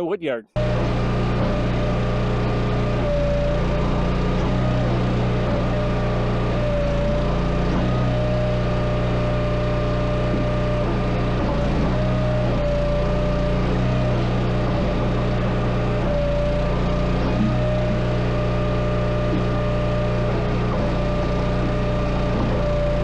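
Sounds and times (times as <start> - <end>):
tractor engine running steadily: 0.6 - 23.0.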